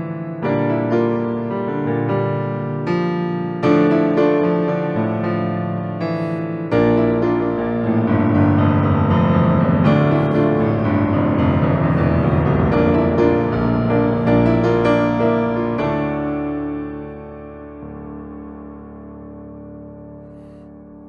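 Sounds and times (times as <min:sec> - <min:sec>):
deep bass: 0:06.8 - 0:16.2.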